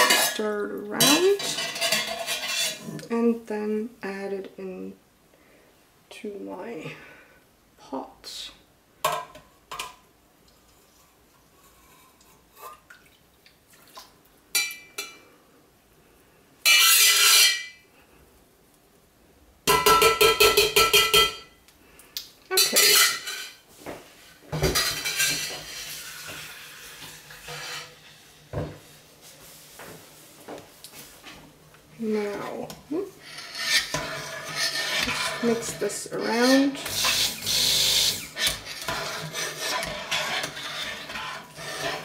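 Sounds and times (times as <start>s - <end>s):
kitchen utensils clattering: 0.0s - 2.9s, 19.7s - 21.5s, 22.5s - 23.6s, 24.5s - 28.0s, 33.2s - 42.0s.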